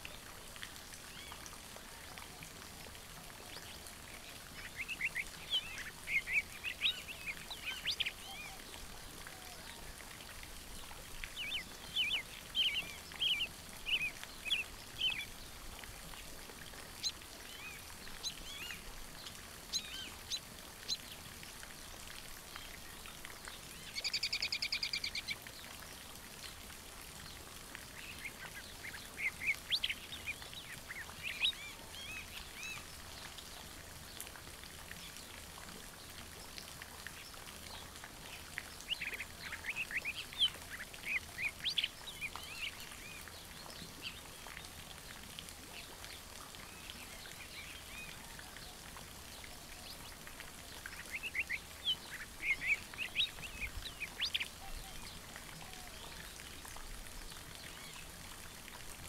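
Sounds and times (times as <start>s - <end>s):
birds chirping: 50.9s - 55.9s.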